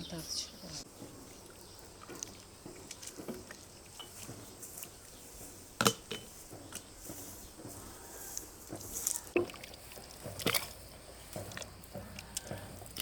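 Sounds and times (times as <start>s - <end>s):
objects tapping and clicking: 2.0s - 4.9s, 5.8s - 7.8s, 8.4s - 13.0s.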